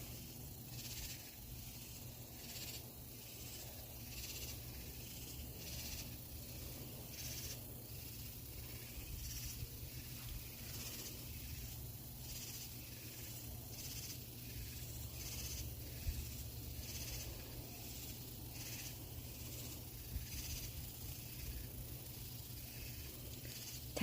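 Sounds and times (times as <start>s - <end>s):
insects calling in hissing pulses: 0.0s - 24.0s
steady low hum: 0.0s - 24.0s.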